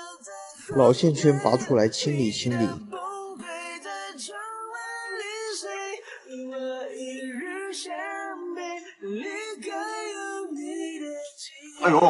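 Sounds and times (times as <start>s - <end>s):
person singing long sliding notes: 0.6s - 3.1s.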